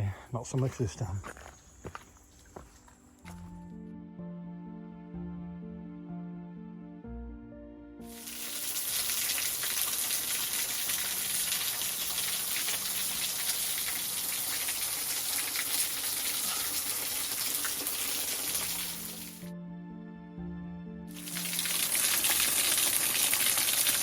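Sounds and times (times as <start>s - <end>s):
stream splashing over rocks: 8.2s - 19.5s, 21.2s - 24.0s.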